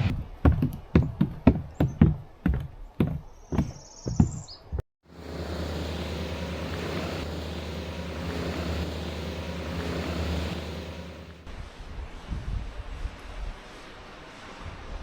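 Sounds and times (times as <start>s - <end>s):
wind and road noise: 0.0s - 0.4s, 5.1s - 13.6s
motorcycle engine low hum: 5.1s - 11.5s.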